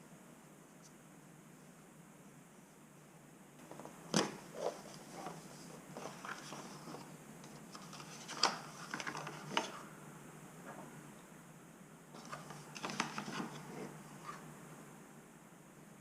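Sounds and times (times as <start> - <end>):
plastic rustling: 3.6 - 9.8, 12.2 - 14.4.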